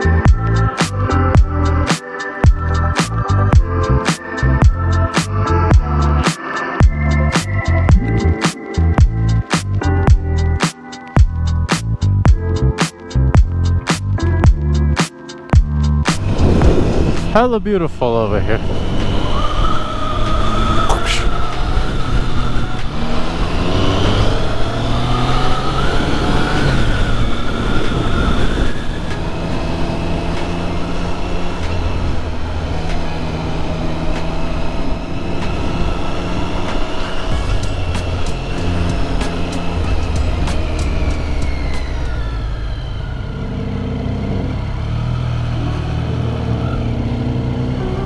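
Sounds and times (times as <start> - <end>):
wind and road noise: 15.6 - 48.0.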